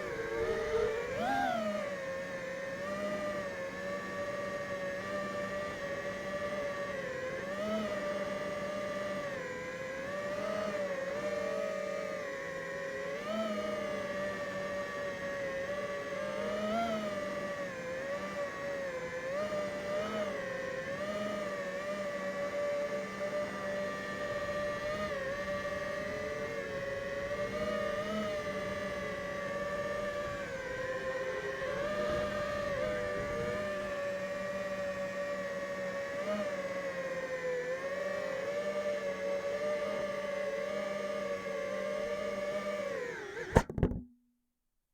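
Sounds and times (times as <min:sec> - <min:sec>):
drone motors whining: 0:00.0 - 0:44.0.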